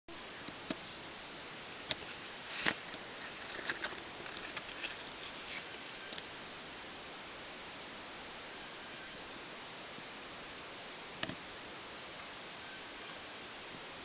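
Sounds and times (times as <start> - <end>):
steady hiss: 0.1 - 14.0.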